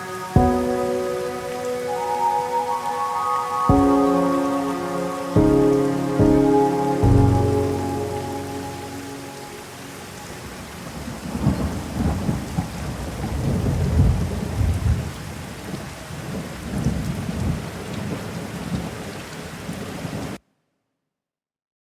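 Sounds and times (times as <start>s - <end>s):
steady rain: 0.0s - 20.4s
rolling thunder: 10.2s - 19.0s.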